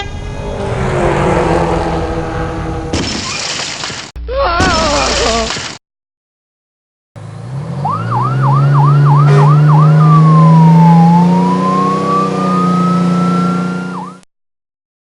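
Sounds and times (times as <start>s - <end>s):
engine drone: 0.0s - 3.0s, 7.2s - 14.2s
fire engine siren: 7.8s - 14.2s.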